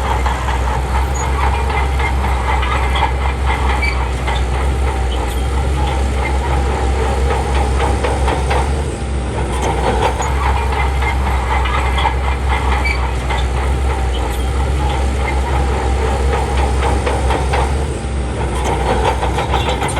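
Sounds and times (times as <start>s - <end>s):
bulldozer diesel engine running: 0.0s - 19.9s
steel tracks clanking: 0.0s - 19.9s.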